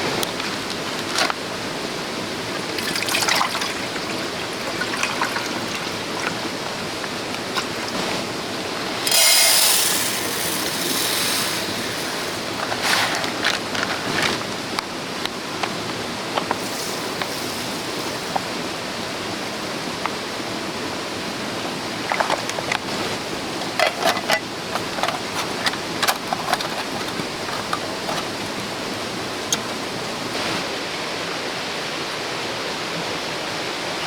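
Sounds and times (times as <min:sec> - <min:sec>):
stream flowing over rocks: 0:00.0 - 0:33.8
hissing rush of water: 0:00.0 - 0:34.0
light clicks and knocks: 0:23.6 - 0:30.0.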